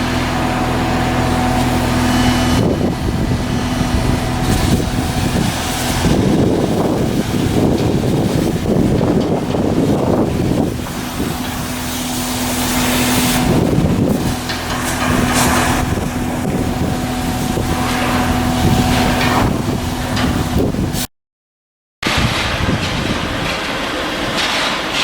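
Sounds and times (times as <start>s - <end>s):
loud rumbling: 0.0s - 21.1s, 22.0s - 25.0s
steady machine hum: 0.0s - 21.1s.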